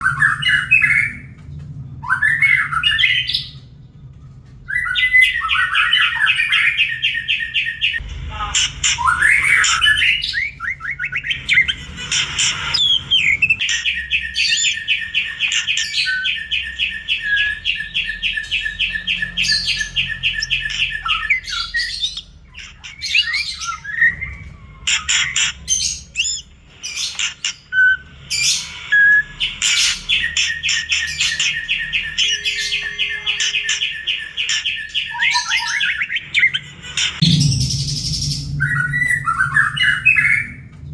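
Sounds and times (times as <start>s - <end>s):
bird rapid repeated notes: 0.0s - 1.4s, 4.7s - 8.0s, 8.9s - 27.4s, 37.2s - 40.9s.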